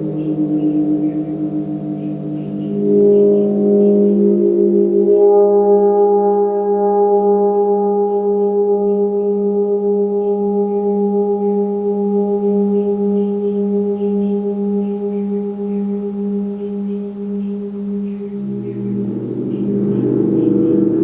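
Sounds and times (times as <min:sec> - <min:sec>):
metal instrument ringing: 0:00.0 - 0:05.4, 0:12.0 - 0:21.0.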